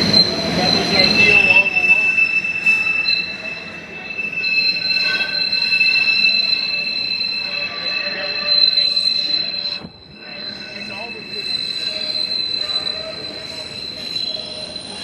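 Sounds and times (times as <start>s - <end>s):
train rumbling: 0.0s - 4.2s
train wheels squealing: 0.0s - 15.0s.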